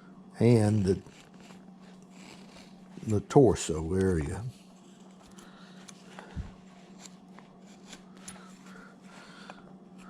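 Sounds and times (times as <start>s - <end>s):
faint steady hum: 0.0s - 10.0s
gouge scraping wood: 1.0s - 2.8s.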